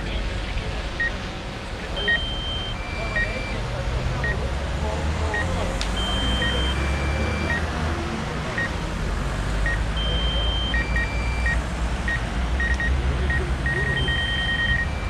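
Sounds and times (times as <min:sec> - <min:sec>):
low engine-like rumble: 0:00.0 - 0:15.0
short electronic beeps: 0:01.9 - 0:04.5, 0:05.2 - 0:07.8, 0:09.6 - 0:15.0
long held electronic tones: 0:02.0 - 0:04.5, 0:05.4 - 0:07.7, 0:09.7 - 0:15.0.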